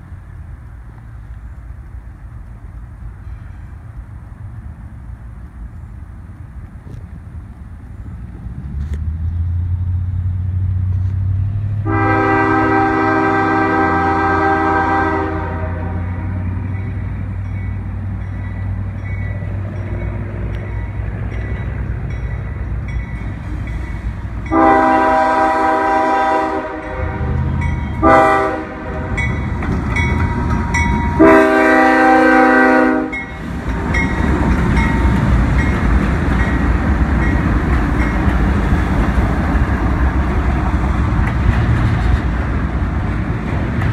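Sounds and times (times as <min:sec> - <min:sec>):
low engine rumble: 0:00.0 - 0:43.9
passing train noise: 0:00.0 - 0:43.9
locomotive air horn blasts: 0:11.8 - 0:16.4, 0:24.4 - 0:29.4, 0:31.1 - 0:33.4.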